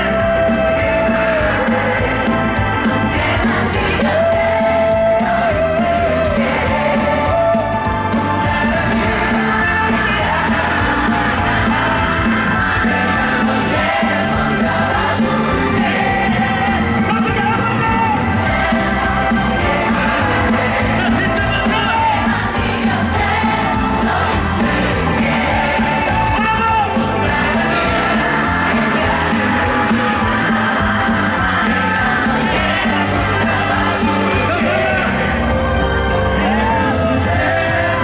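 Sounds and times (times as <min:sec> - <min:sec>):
live pop band playing: 0:00.0 - 0:38.0.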